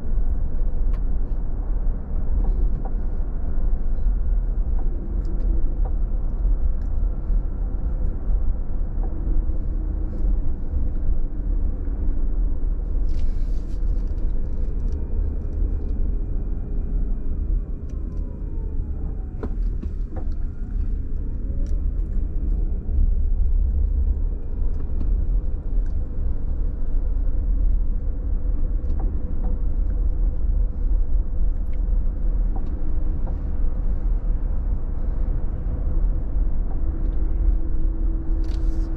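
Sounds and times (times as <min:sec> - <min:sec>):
car engine and tyre road noise: 0:00.0 - 0:38.9.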